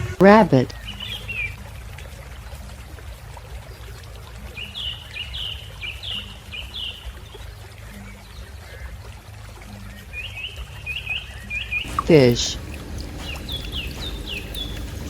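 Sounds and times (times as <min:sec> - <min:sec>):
bird chirping: 0:11.7 - 0:15.0
steady low background noise: 0:11.8 - 0:15.0.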